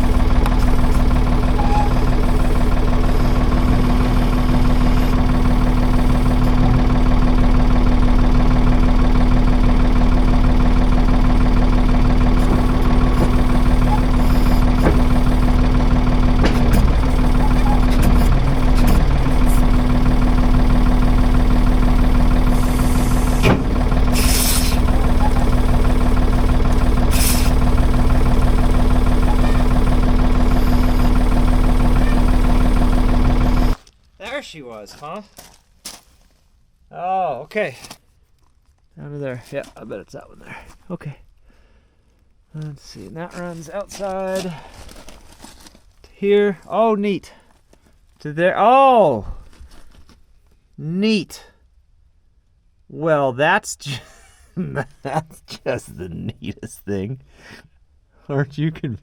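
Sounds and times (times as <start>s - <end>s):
diesel engine running: 0.0s - 33.8s
short hisses: 24.2s - 24.8s.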